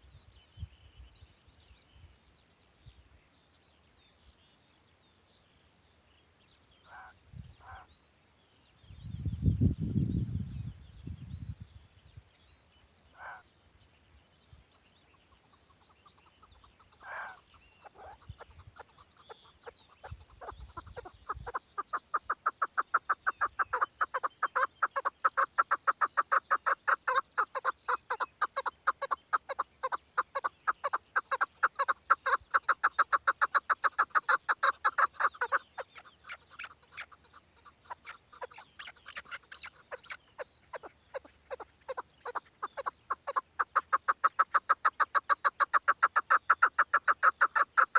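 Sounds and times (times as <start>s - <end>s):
partridge clucking calls: 13.1s - 13.5s, 14.7s - 47.9s.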